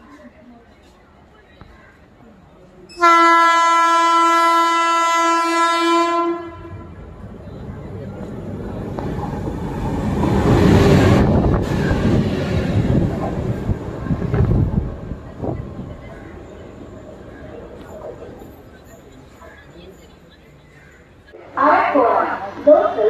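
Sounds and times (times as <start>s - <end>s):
locomotive horn blast: 2.9s - 7.0s
train rushing past: 4.2s - 20.1s.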